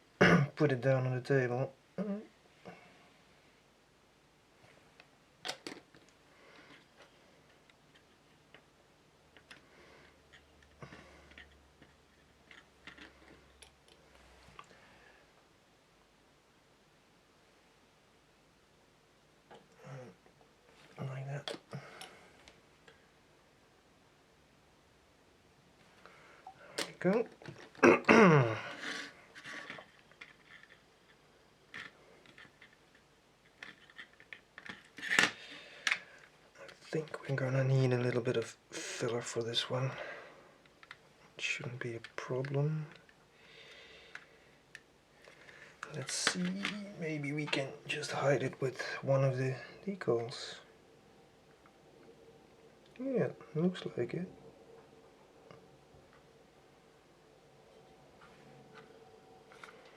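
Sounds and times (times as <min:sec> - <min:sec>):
plastic parts clicking: 0:05.4 - 0:06.9, 0:29.4 - 0:36.9.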